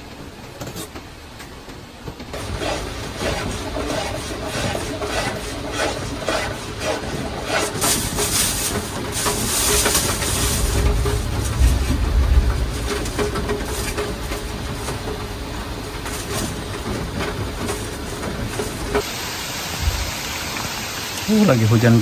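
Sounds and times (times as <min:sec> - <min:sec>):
heavy rain falling: 0:06.6 - 0:22.0
low rumble: 0:08.8 - 0:19.0.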